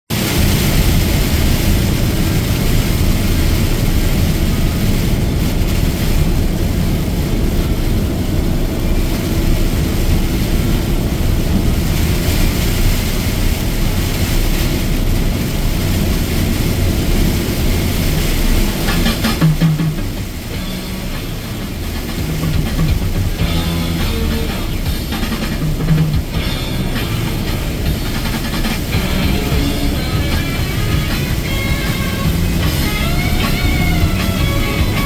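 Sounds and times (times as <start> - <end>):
rain and tyre spray hiss: 0.1 - 35.0
truck engine and road rumble: 0.1 - 35.0.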